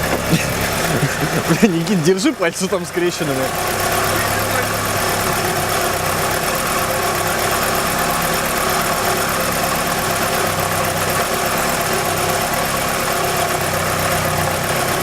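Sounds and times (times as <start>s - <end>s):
fast even ticking: 0.0s - 7.6s
car engine idling: 0.0s - 15.0s.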